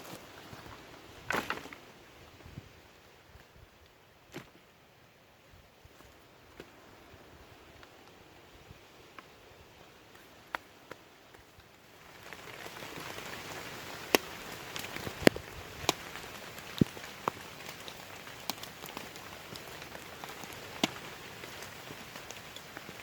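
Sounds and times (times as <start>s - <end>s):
rain falling: 10.8s - 23.0s.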